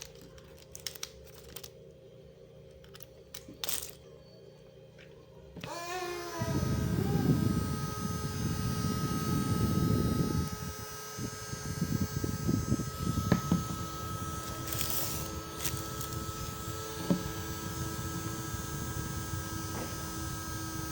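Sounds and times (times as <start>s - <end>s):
electric fan motor whine: 0.0s - 20.9s
airflow buffeting microphone: 6.4s - 20.9s.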